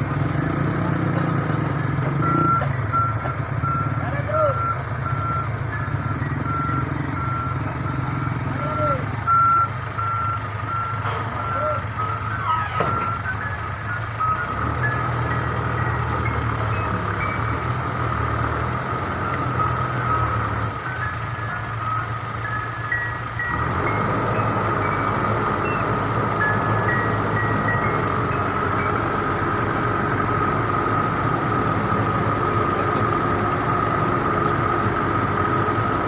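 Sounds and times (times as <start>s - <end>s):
heavy truck engine running: 0.0s - 36.0s
reversing alarm beeping: 1.8s - 34.5s.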